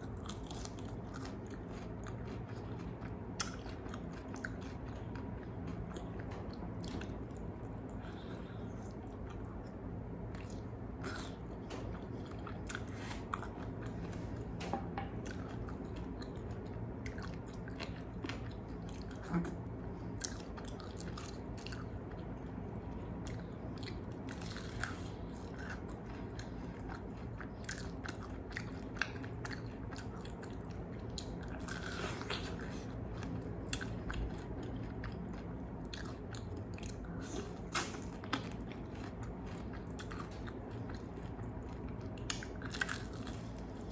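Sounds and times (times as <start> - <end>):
crunchy biting and chewing: 0.0 - 6.2, 23.3 - 43.9
steady low hum: 0.0 - 43.9.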